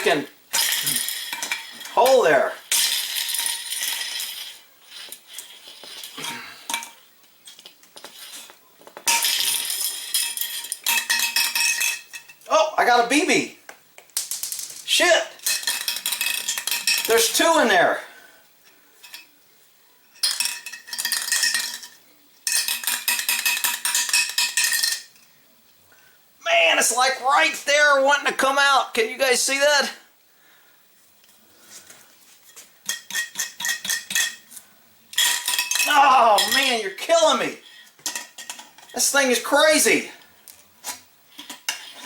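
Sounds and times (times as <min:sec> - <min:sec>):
marble and bbs rattling in spray can: 0:00.0 - 0:06.2, 0:07.4 - 0:11.9, 0:14.0 - 0:17.6, 0:20.2 - 0:25.1
metal tool scraping metal can: 0:00.0 - 0:06.9, 0:32.8 - 0:34.4.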